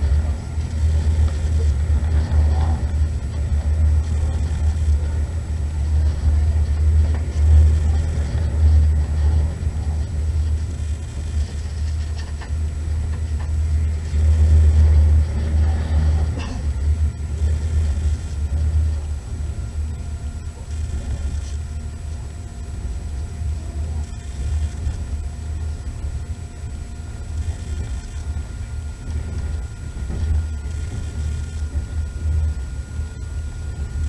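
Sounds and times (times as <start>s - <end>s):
train low rumble: 0.0s - 34.0s.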